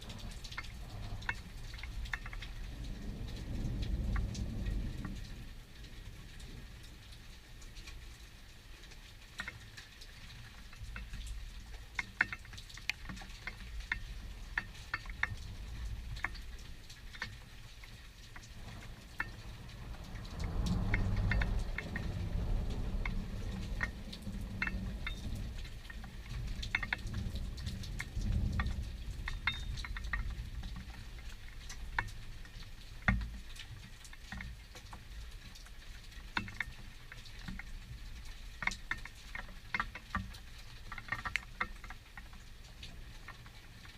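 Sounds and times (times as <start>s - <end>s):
thunder rumbling: 0.0s - 7.1s, 18.5s - 30.6s
raindrops pattering: 0.0s - 43.9s.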